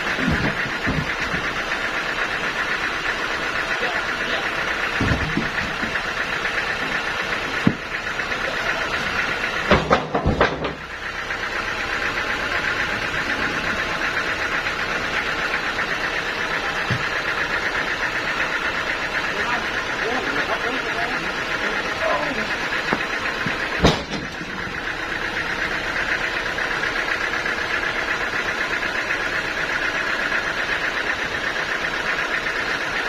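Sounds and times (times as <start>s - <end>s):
metal knocks and clanks: 0.0s - 1.8s, 4.9s - 6.1s, 6.8s - 8.0s, 9.2s - 11.0s, 22.8s - 24.8s
engine running: 0.0s - 33.0s.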